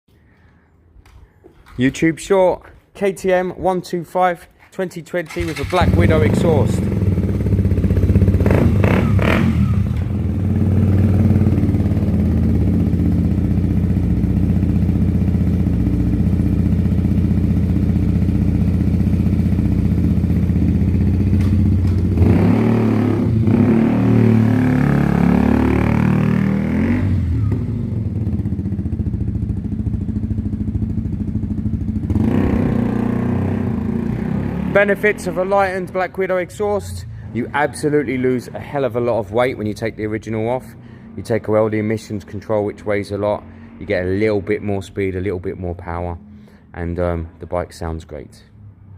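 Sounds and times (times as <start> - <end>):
motorcycle engine idling: 5.3 - 22.2, 27.2 - 34.0.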